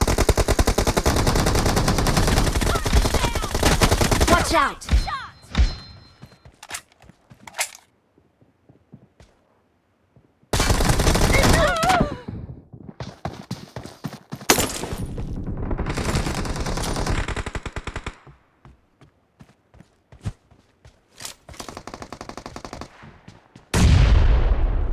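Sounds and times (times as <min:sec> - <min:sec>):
rapid automatic gunfire: 0:00.0 - 0:04.5, 0:10.6 - 0:11.6, 0:15.3 - 0:18.2, 0:21.6 - 0:22.9.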